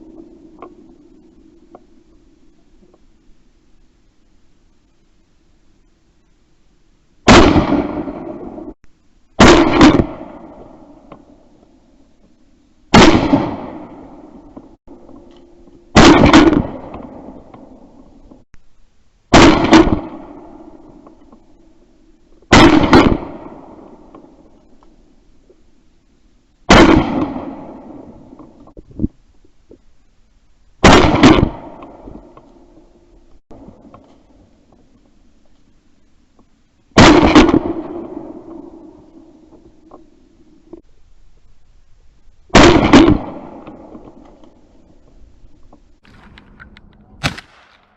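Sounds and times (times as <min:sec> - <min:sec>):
shotgun shots: 0:07.3 - 0:08.5, 0:09.4 - 0:10.6, 0:12.9 - 0:14.1, 0:15.9 - 0:17.4, 0:19.3 - 0:20.6, 0:22.5 - 0:23.8, 0:26.7 - 0:27.9, 0:30.8 - 0:32.0, 0:37.0 - 0:38.2, 0:42.5 - 0:44.0, 0:46.0 - 0:47.9.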